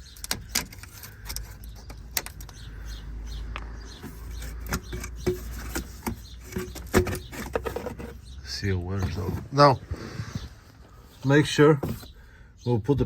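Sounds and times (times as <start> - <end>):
hand tools clicking and knocking: 0.0 - 2.7, 4.0 - 8.2.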